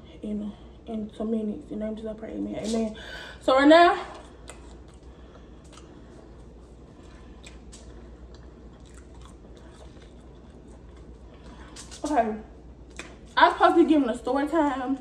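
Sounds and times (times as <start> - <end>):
person chewing crispy food: 4.2 - 12.1.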